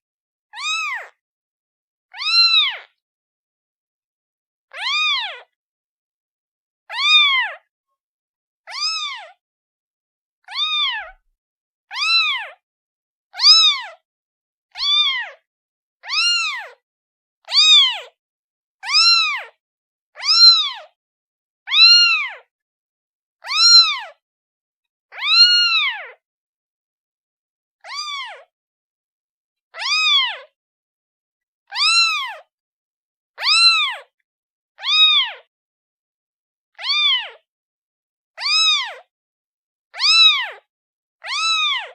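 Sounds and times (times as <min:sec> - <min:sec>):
kitten meowing: 0:00.6 - 0:01.2, 0:02.1 - 0:02.9, 0:04.8 - 0:05.5, 0:06.9 - 0:07.6, 0:08.7 - 0:09.4, 0:10.4 - 0:11.2, 0:11.9 - 0:12.6, 0:13.4 - 0:14.0, 0:14.8 - 0:15.4, 0:16.0 - 0:16.8, 0:17.5 - 0:18.1, 0:18.8 - 0:19.6, 0:20.2 - 0:20.9, 0:21.7 - 0:22.5, 0:23.4 - 0:24.2, 0:25.1 - 0:26.2, 0:27.8 - 0:28.5, 0:29.8 - 0:30.5, 0:31.7 - 0:32.5, 0:33.4 - 0:34.1, 0:34.8 - 0:35.5, 0:36.8 - 0:37.4, 0:38.4 - 0:39.1, 0:39.9 - 0:41.9.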